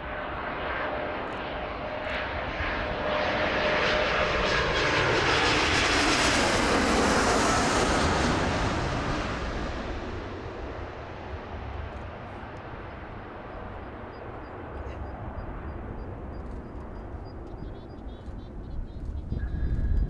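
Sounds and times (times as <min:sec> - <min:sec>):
jet airliner passing overhead: 0:00.0 - 0:20.0
faint bird chirps: 0:14.2 - 0:20.0.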